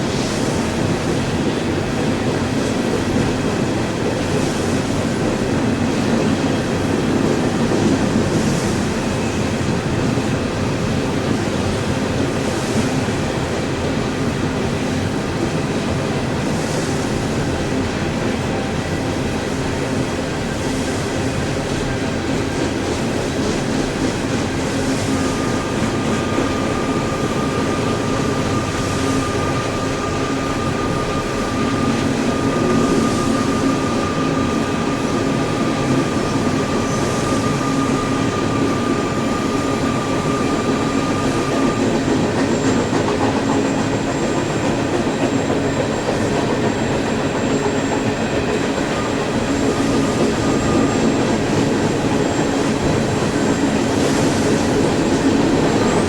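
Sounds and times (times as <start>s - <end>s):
train wheels rattling on rails: 0.0s - 56.0s
high wheel squeal: 25.1s - 56.0s.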